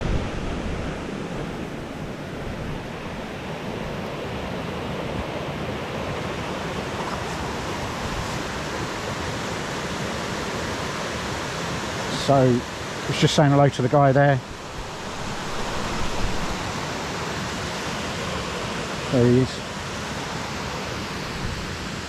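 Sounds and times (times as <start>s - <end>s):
wind buffeting microphone: 0.0s - 10.6s, 14.4s - 17.5s, 21.2s - 22.0s
falling water roaring: 0.0s - 22.0s.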